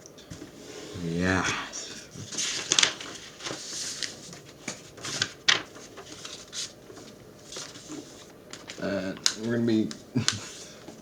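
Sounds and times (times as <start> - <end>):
paper rustling: 2.2 - 11.0.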